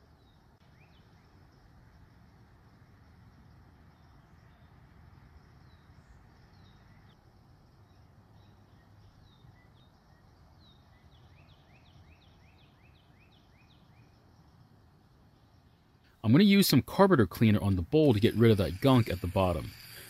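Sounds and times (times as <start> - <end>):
bird chirping: 0.0 - 1.4, 5.6 - 7.2, 7.8 - 14.6, 17.5 - 20.0.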